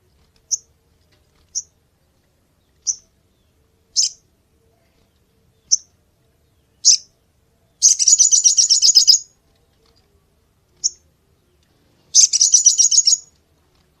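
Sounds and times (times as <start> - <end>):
high-pitched bird trills: 4.0 - 4.2, 7.8 - 9.3, 12.2 - 13.3
bird sharp chips: 12.2 - 13.3.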